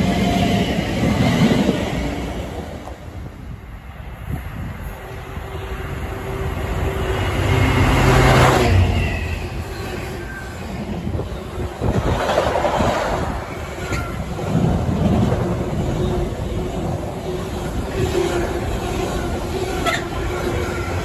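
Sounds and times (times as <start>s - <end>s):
freight locomotive passing: 0.0s - 21.0s
wagons clicking over rail joints: 9.8s - 21.0s.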